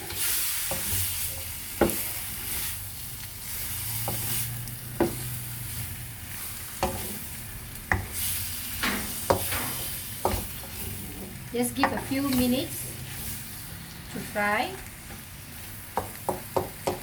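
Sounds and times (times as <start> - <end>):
chicken frying in oil: 0.0 - 17.0
spoon knocking against pan: 11.8 - 12.1, 16.0 - 17.0.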